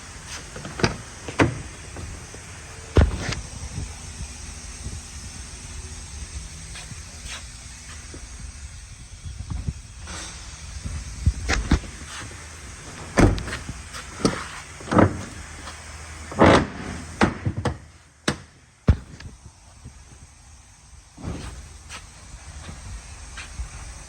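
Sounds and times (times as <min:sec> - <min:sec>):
steady hiss: 0:00.0 - 0:24.0
vehicle doors clunking shut: 0:00.3 - 0:03.6, 0:12.8 - 0:15.5.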